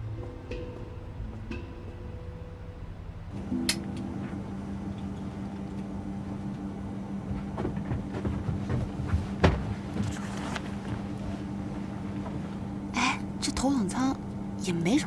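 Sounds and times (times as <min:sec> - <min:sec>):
airliner cabin hum: 0:00.0 - 0:15.0
soft knocks: 0:07.3 - 0:11.0.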